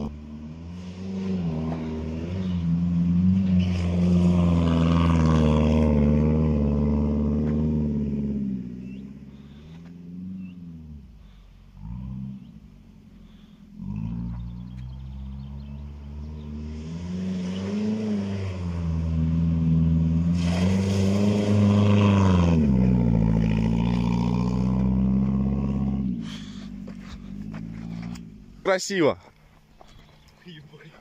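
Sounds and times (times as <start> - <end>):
car engine revving: 0.0 - 28.7
tyres on gravel: 20.2 - 31.0.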